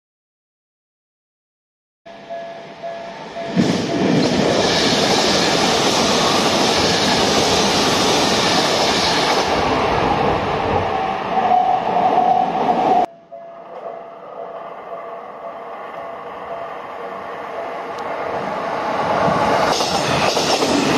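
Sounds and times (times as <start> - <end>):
level crossing warning bell: 2.1 - 4.2, 13.0 - 18.0
train passing at speed: 2.1 - 20.9.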